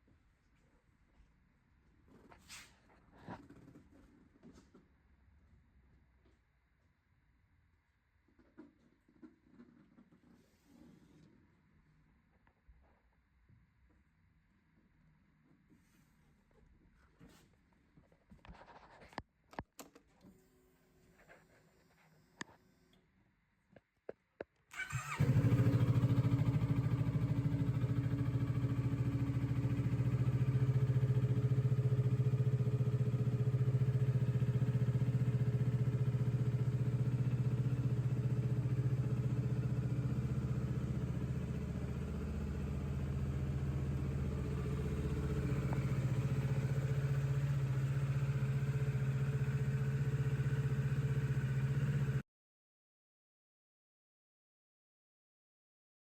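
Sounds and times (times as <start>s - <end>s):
motorcycle engine idling: 24.8s - 52.2s.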